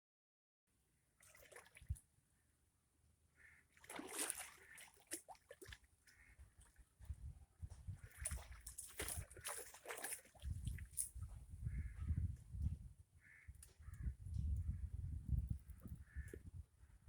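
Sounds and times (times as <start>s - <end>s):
river water splashing and trickling: 1.2s - 2.1s, 3.6s - 7.0s, 8.0s - 11.3s.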